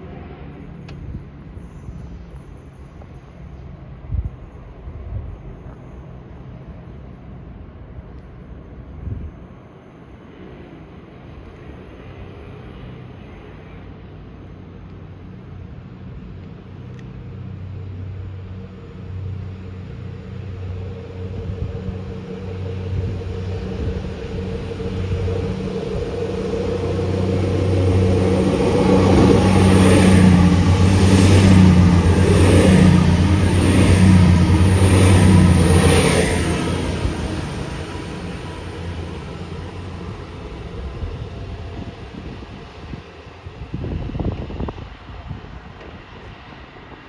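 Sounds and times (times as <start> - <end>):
train passing drone: 0.0 - 47.0
train wheels clacking over rails: 20.6 - 41.6.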